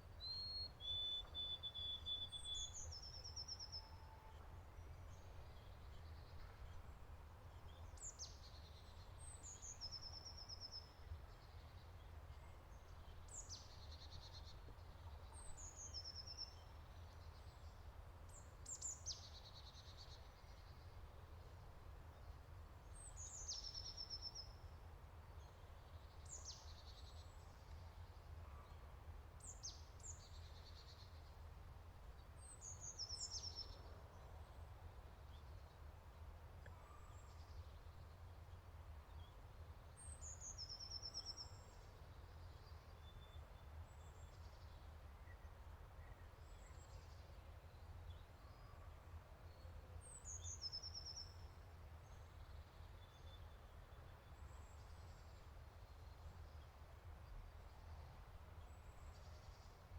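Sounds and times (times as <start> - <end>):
songbirds singing trills: 0.2 - 21.0.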